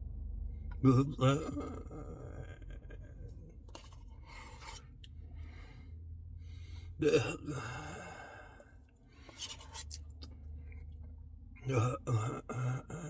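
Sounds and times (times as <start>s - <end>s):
man breathing while eating: 4.2s - 9.5s.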